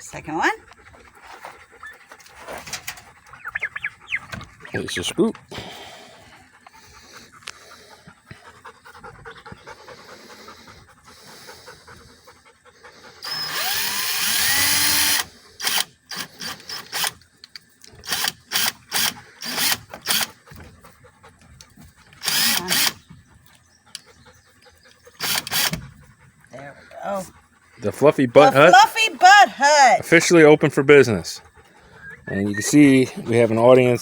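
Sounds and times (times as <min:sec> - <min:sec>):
power drill driving screws: 0:13.2 - 0:17.2, 0:18.0 - 0:20.4, 0:22.2 - 0:23.0, 0:25.2 - 0:25.8.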